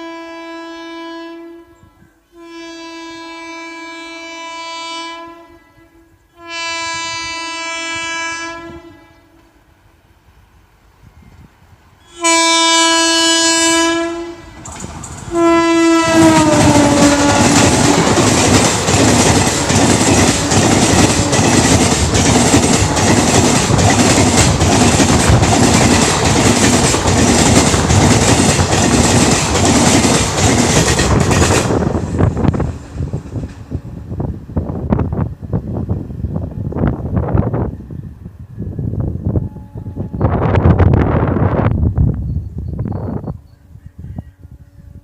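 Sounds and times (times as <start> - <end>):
train horn blasts: 0.0 - 9.6, 12.0 - 14.6, 15.3 - 18.5, 39.2 - 41.0, 43.5 - 45.0
train coaches clattering over rails: 14.5 - 15.4, 16.0 - 33.8.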